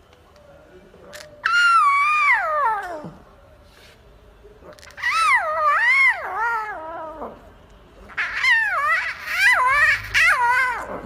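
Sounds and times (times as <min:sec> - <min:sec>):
cat yowling: 0:01.4 - 0:03.2, 0:04.8 - 0:07.4, 0:08.1 - 0:11.0.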